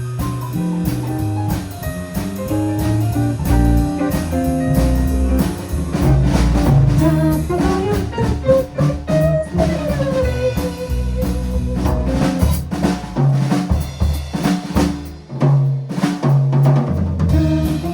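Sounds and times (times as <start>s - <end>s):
jazz guitar melody: 0.0s - 13.2s, 17.3s - 17.9s
low accompaniment: 0.0s - 14.0s, 17.3s - 17.9s
drum kit: 0.0s - 17.9s.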